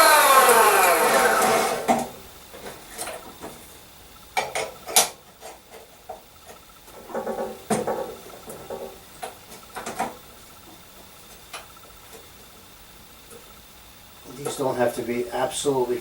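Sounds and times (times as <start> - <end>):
chop saw motor spinning down: 0.0 - 2.1.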